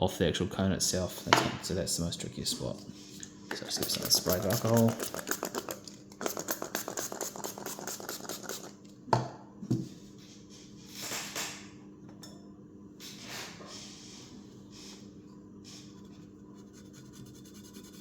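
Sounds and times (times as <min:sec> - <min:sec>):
quick scratching strokes: 0:03.8 - 0:08.7
spray bottle hissing: 0:06.2 - 0:08.7.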